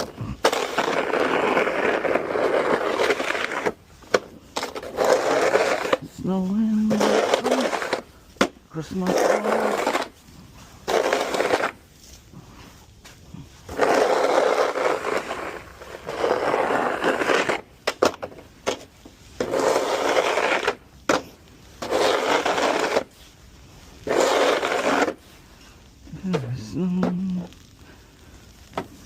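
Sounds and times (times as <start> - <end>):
scraping strokes: 0.0 - 29.0.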